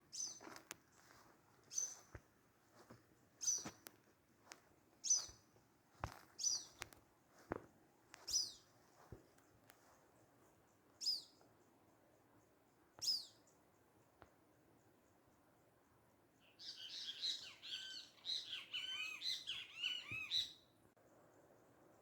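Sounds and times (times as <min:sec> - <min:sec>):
songbird calling: 0:00.0 - 0:02.2, 0:03.3 - 0:03.9, 0:05.0 - 0:05.5, 0:06.3 - 0:06.9, 0:08.2 - 0:08.7, 0:11.0 - 0:14.0, 0:16.4 - 0:21.4.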